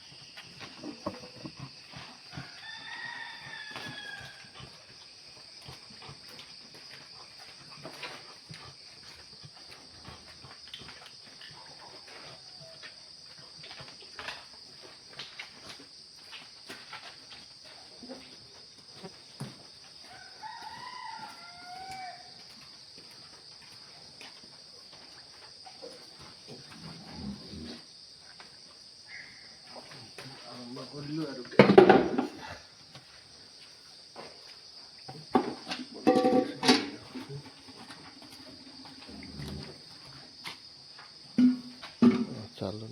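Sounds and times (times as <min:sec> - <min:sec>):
rooster crowing: 0:02.3 - 0:04.6, 0:20.0 - 0:22.4
insect chirring: 0:23.6 - 0:31.6, 0:34.4 - 0:42.9.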